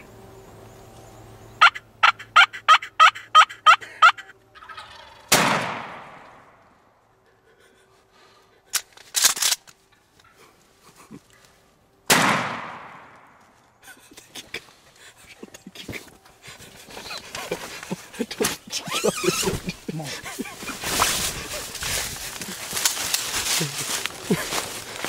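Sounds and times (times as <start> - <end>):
turkey gobbling: 1.6 - 5.3
shotgun blast with echo: 5.3 - 6.5, 12.1 - 13.1.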